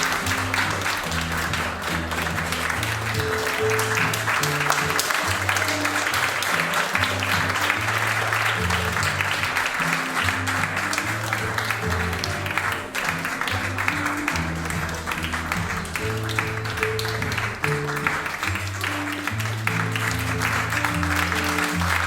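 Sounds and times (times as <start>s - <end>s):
audience applauding: 0.0s - 22.0s
music with low bass notes: 0.0s - 22.0s.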